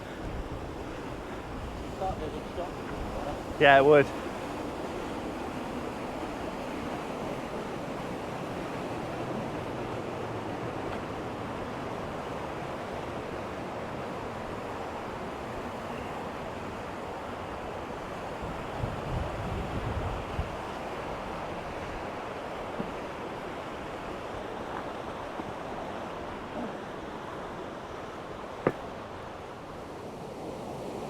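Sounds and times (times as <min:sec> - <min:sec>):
wind buffeting microphone: 0:00.0 - 0:15.8, 0:17.2 - 0:31.0.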